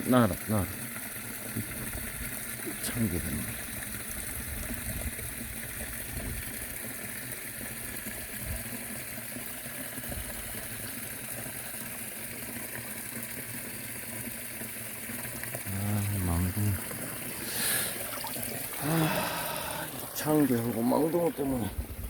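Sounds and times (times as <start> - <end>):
water rushing over a weir: 0.0 - 22.0.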